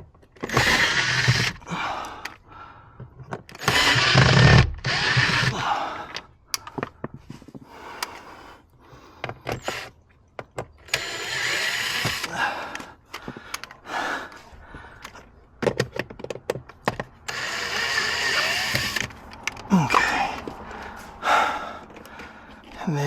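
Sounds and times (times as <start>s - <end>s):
cordless drill backing out screws: 0.4s - 2.2s, 3.4s - 5.7s, 9.3s - 9.9s, 10.7s - 13.3s, 16.9s - 20.3s
clicks and knocks of tools handled: 12.0s - 13.8s, 18.7s - 20.9s.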